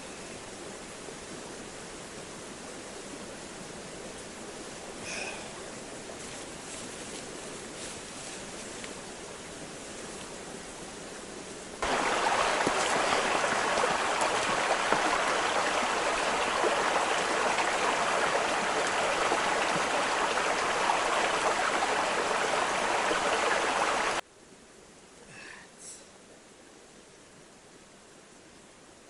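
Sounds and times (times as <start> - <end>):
running water: 11.8 - 24.2.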